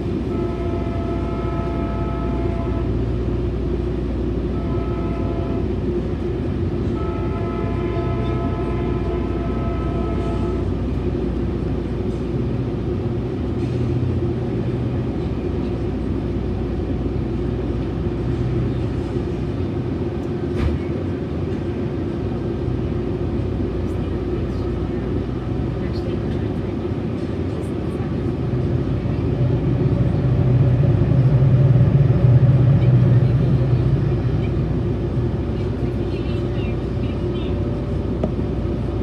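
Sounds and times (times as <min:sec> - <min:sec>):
train wheels rumbling on rails: 0:00.0 - 0:39.0
train horn blasts: 0:00.2 - 0:03.2, 0:04.4 - 0:06.0, 0:06.8 - 0:10.9.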